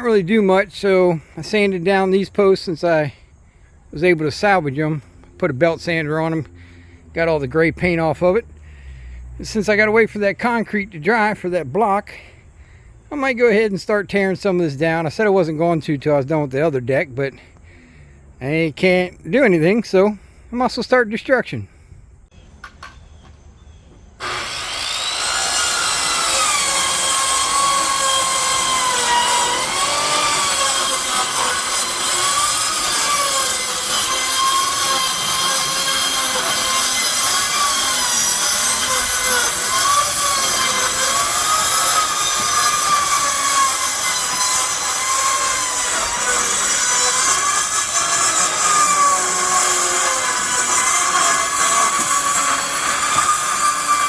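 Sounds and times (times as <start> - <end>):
power saw cutting wood: 24.2 - 54.0.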